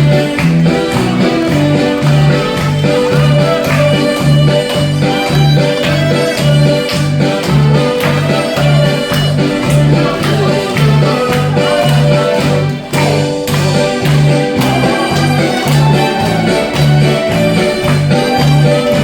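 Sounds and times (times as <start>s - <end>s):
backing track with bass beat: 0.0s - 19.0s
harmonica melody: 0.0s - 19.0s.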